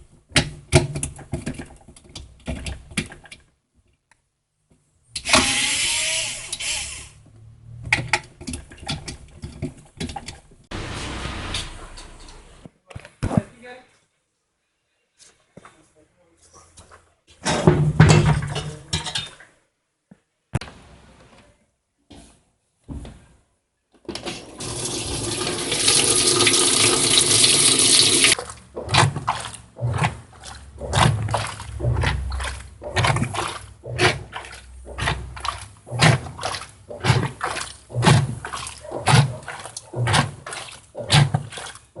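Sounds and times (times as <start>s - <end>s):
water rushing into washing machine: 24.1s - 42.0s
agitator sloshing water: 24.6s - 42.0s.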